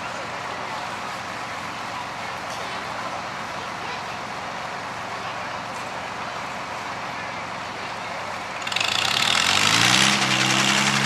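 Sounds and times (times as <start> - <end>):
tractor engine revving: 7.4 - 11.0.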